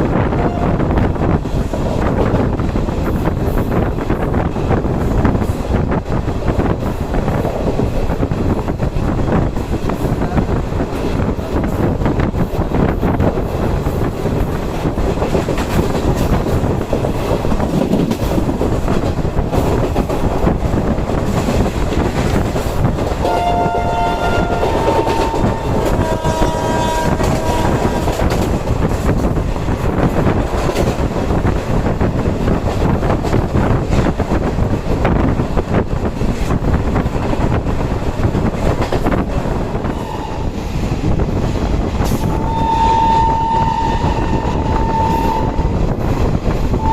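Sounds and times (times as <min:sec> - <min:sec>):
train rumbling over rails: 0:00.0 - 0:46.9
train horn: 0:00.2 - 0:01.0, 0:23.2 - 0:28.3, 0:39.8 - 0:40.6, 0:42.2 - 0:45.8.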